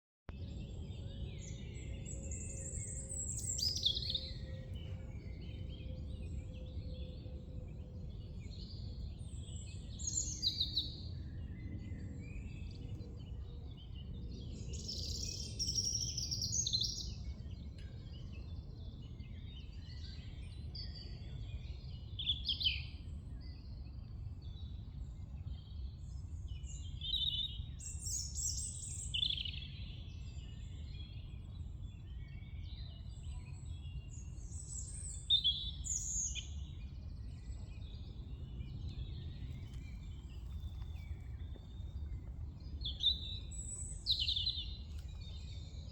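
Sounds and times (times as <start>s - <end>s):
songbirds singing: 0.3s - 45.9s
steady low rumble: 36.6s - 45.9s.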